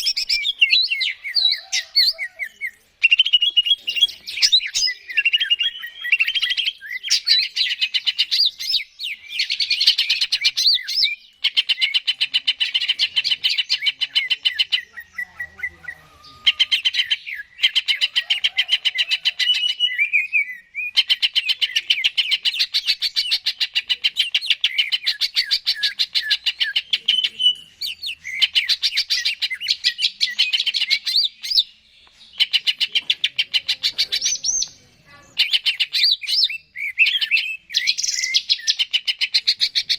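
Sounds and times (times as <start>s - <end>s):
bird singing rapid repeated notes: 0.0s - 1.8s, 2.5s - 18.1s, 19.4s - 39.9s.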